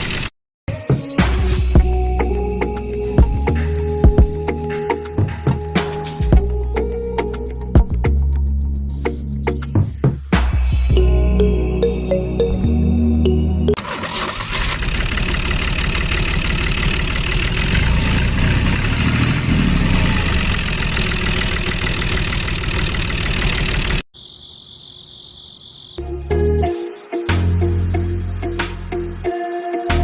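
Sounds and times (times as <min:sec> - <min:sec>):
background music: 0:00.7 - 0:13.8, 0:26.0 - 0:30.0
motor rattling: 0:13.9 - 0:24.0.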